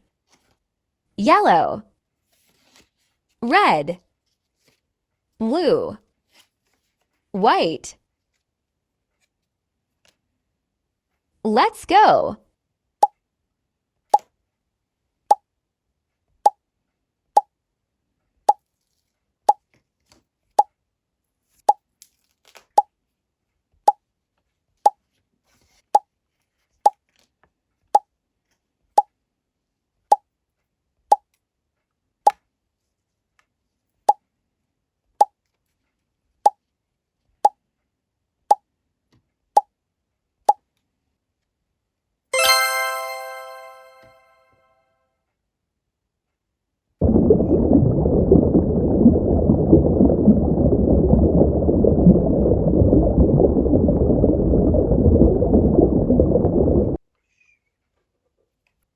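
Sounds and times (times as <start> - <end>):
bright chime: 42.4 - 44.3
cartoon plop sound effect: 42.4 - 44.3.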